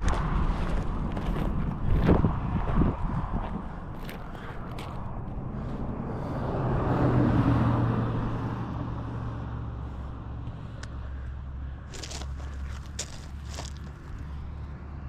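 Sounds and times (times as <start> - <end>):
car passing: 0.0 - 15.0.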